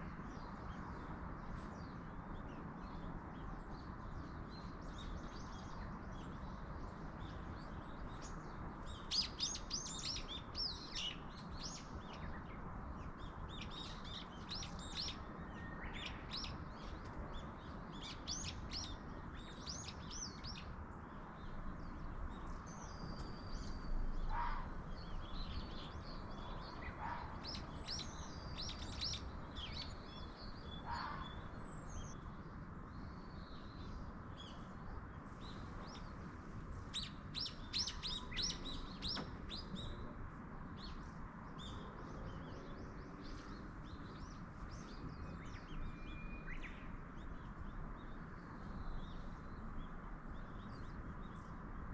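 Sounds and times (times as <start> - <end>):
songbirds chirping: 0.0 - 51.9
low bird calls: 22.9 - 25.7, 26.5 - 31.6.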